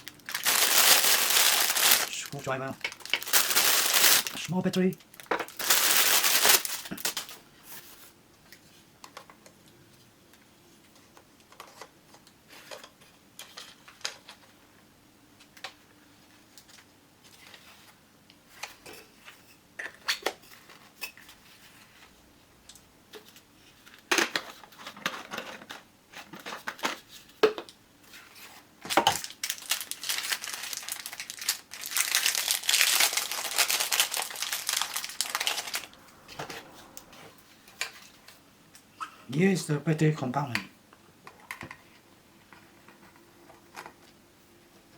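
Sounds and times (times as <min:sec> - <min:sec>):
packaging crinkling and tearing: 0:00.0 - 0:07.4, 0:28.9 - 0:36.0.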